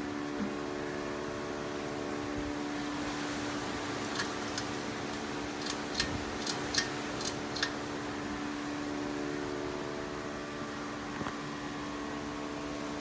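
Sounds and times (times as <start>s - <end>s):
ceiling fan motor hum: 0.0s - 13.0s
sharp ticks: 4.1s - 7.8s.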